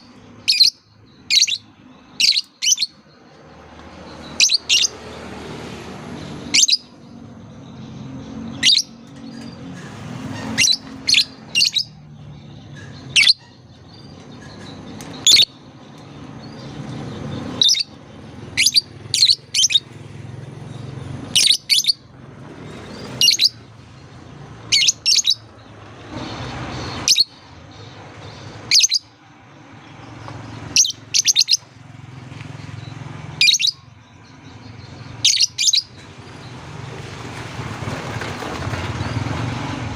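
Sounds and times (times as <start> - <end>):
lovebird chirping: 0.0 - 3.3, 4.1 - 5.1, 6.4 - 9.5, 10.4 - 19.9, 21.3 - 22.0, 22.7 - 25.7, 26.7 - 29.2, 30.6 - 31.7, 32.9 - 35.9.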